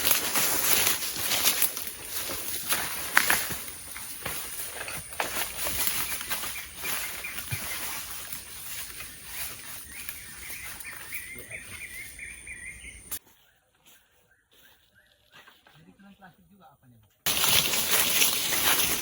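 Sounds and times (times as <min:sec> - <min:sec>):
crunching and rustling in undergrowth: 0:00.0 - 0:15.9, 0:17.3 - 0:19.0
bird trilling: 0:03.7 - 0:13.2.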